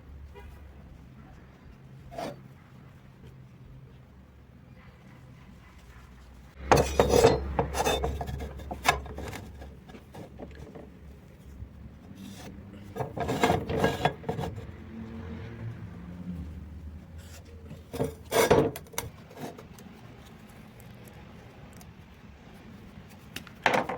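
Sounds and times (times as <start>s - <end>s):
hand tool scraping iron pipe: 2.0s - 2.5s, 6.6s - 14.8s, 17.2s - 19.8s.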